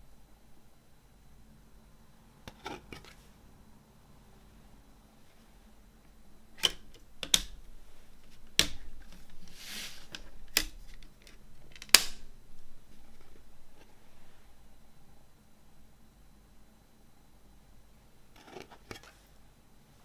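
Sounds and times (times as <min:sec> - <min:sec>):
sliding rustle: 0:09.0 - 0:11.0.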